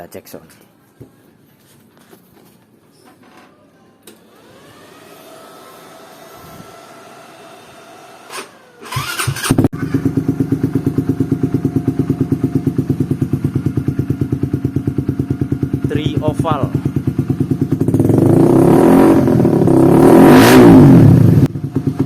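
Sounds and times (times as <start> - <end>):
starter motor cranking: 4.1 - 10.0
motorcycle engine idling: 8.8 - 18.4, 21.2 - 22.0.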